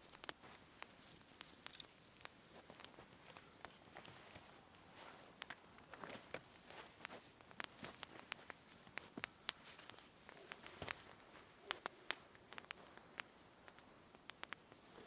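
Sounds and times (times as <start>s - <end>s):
faint steady hiss: 0.0s - 15.0s
sharp clicks and taps: 0.0s - 15.0s.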